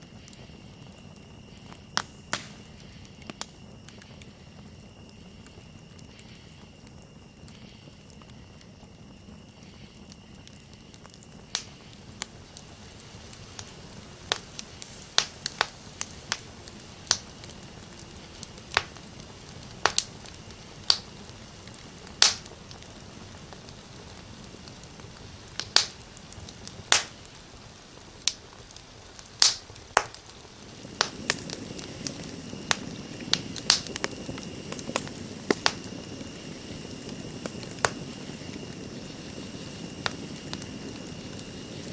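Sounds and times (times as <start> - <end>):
campfire crackling and popping: 0.0 - 41.9
high insect trill: 30.4 - 41.9.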